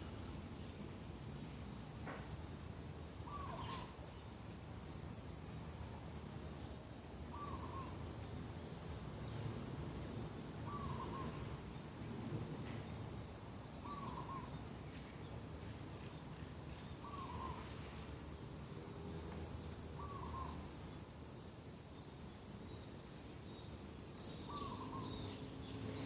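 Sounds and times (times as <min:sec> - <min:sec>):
small birds chirping: 0:00.0 - 0:26.0
dove cooing: 0:10.7 - 0:11.5, 0:17.0 - 0:17.6, 0:20.0 - 0:20.6.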